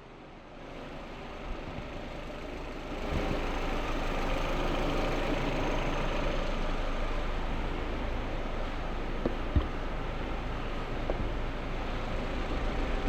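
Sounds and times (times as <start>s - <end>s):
mechanical running noise with hiss: 0.6s - 6.8s.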